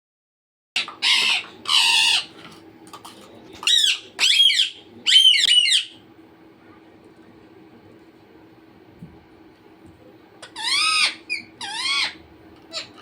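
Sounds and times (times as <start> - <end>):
parrot squawking: 0.8 - 2.4, 3.6 - 6.0, 10.4 - 13.0.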